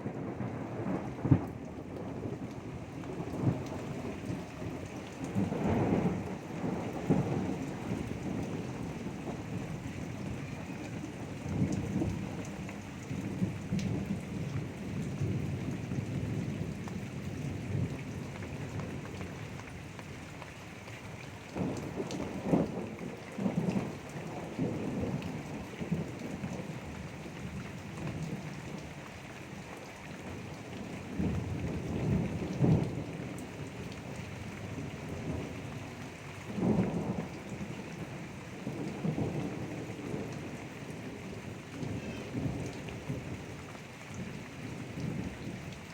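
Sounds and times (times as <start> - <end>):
thunder rumbling: 0.0 - 19.2, 36.5 - 43.4
steady rain: 0.0 - 45.9.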